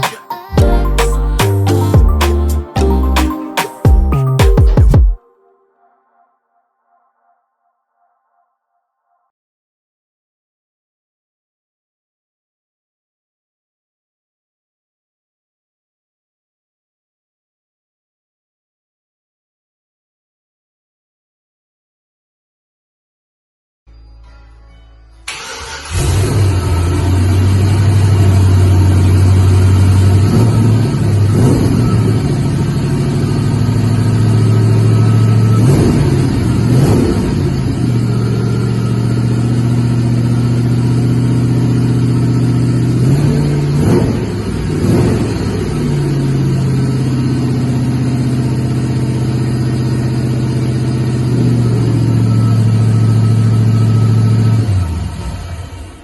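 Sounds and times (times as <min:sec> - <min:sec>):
pickup engine revving: 0:25.3 - 0:55.9.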